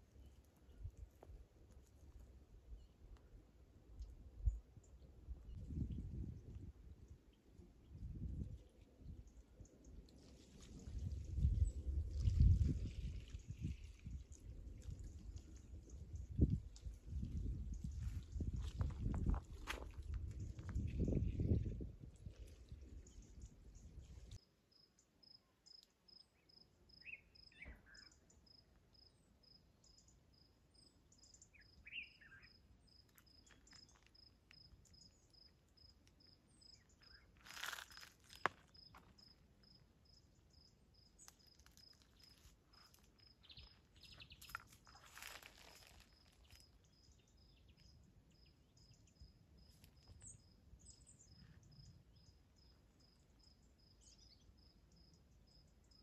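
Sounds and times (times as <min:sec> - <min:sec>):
cricket chirping: 0:24.7 - 0:56.0.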